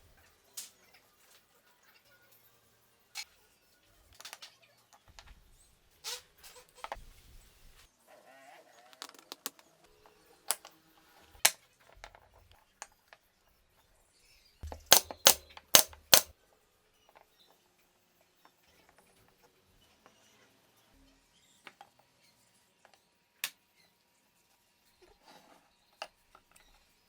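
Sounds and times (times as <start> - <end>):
sharp clicks and taps: 14.6 - 16.3.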